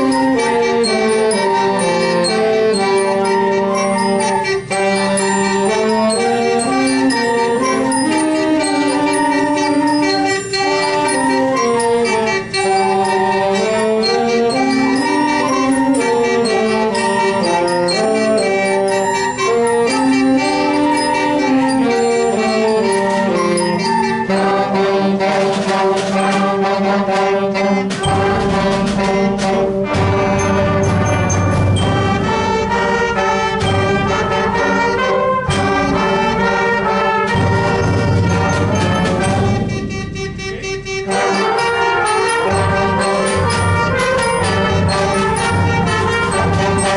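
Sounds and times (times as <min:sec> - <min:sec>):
concert band playing: 0:00.0 - 0:46.9
sharp drum strikes: 0:27.8 - 0:46.9.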